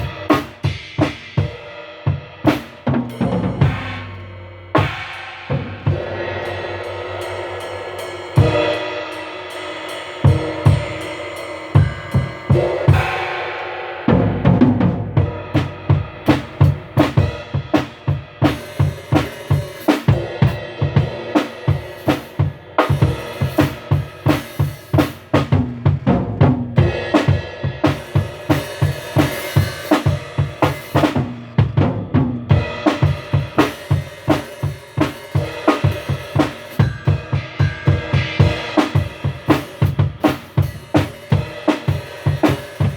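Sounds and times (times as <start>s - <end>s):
snare drum: 0.0s - 1.4s, 14.1s - 42.9s
cymbals ringing: 2.6s - 25.3s, 32.6s - 42.9s
kick drum: 30.1s - 34.4s.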